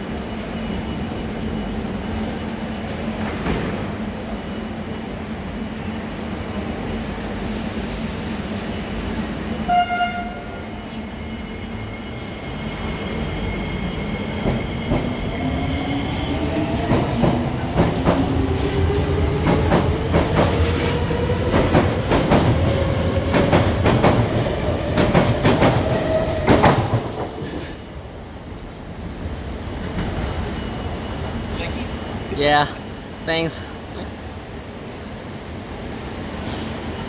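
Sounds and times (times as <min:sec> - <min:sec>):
train horn toot: 0:09.6 - 0:10.7.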